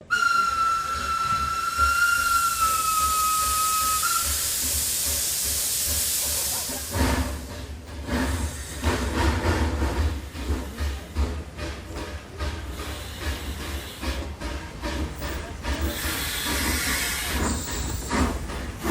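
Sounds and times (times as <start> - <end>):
steam locomotive whistle: 0.0 - 5.0
loud hiss of escaping steam: 0.1 - 10.2, 11.6 - 18.9.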